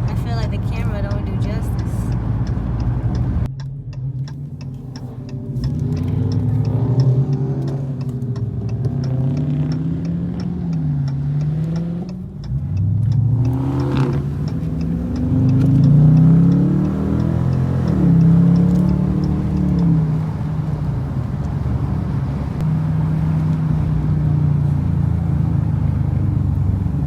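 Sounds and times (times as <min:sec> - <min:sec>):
car engine revving: 0:00.0 - 0:27.0
hazard light flasher ticking: 0:01.1 - 0:20.8.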